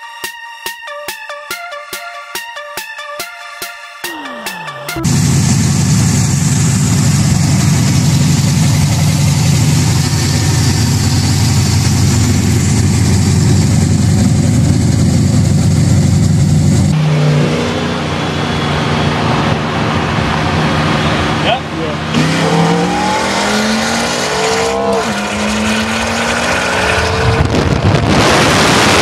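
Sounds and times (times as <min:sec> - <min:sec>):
loud engine idling: 0:04.9 - 0:17.1
quieter engine drone: 0:04.9 - 0:25.6.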